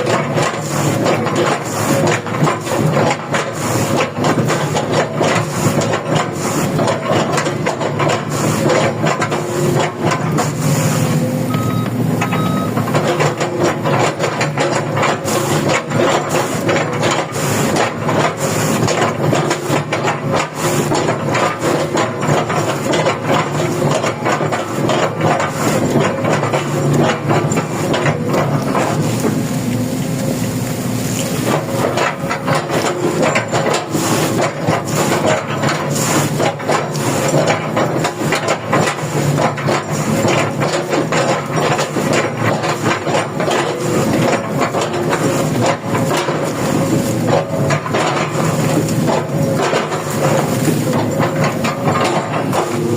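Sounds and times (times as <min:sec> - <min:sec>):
excavator diesel engine: 0:00.0 - 0:52.9
short beeps: 0:11.5 - 0:12.8.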